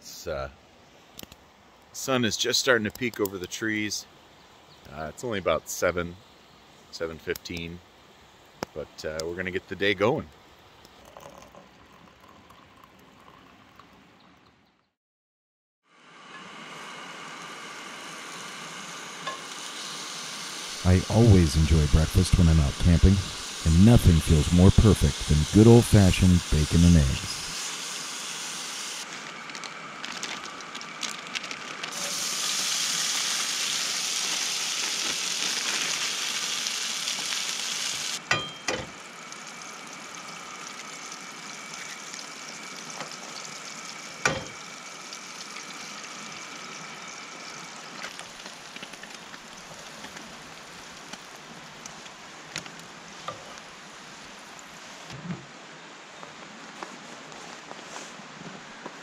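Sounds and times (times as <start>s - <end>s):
bacon and eggs sizzling in pan: 16.7s - 52.1s.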